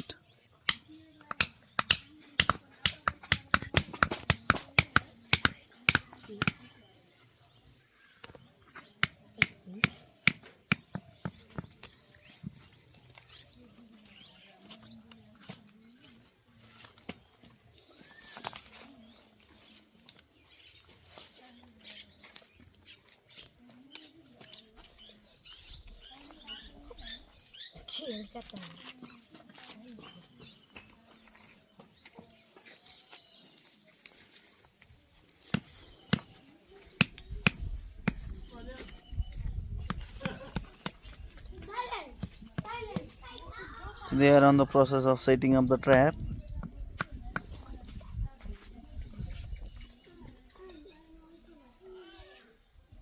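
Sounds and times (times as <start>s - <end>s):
sticks and stones knocking: 0.0s - 6.8s, 8.2s - 13.6s, 16.7s - 20.4s, 34.0s - 43.2s
birds chirping faintly: 0.0s - 53.0s
sticks and stones clicking: 16.7s - 20.5s, 23.3s - 25.1s.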